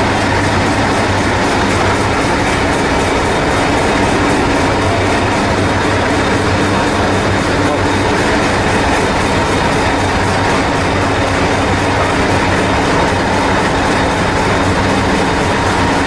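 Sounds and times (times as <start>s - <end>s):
train rolling rumble: 0.0s - 16.0s.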